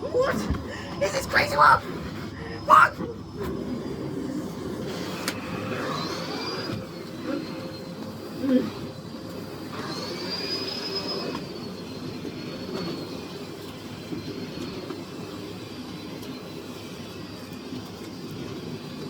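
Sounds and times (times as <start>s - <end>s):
vacuum cleaner running: 0.0s - 19.0s
high whistle: 5.7s - 13.1s.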